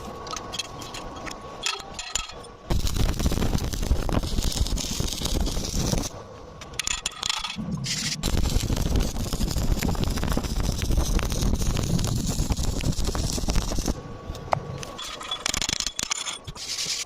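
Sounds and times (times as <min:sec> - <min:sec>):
welding arc crackling: 0:02.7 - 0:06.2, 0:07.8 - 0:14.0.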